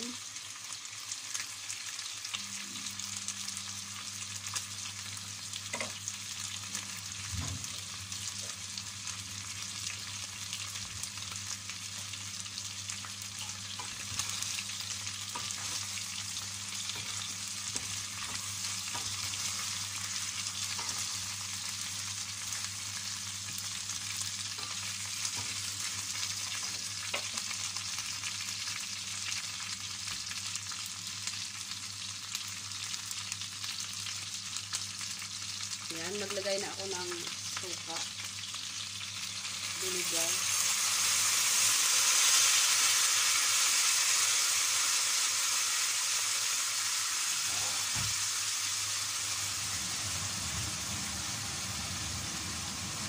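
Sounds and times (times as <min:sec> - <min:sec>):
chicken sizzling in oil: 0:00.0 - 0:53.0
low hum: 0:49.5 - 0:53.0.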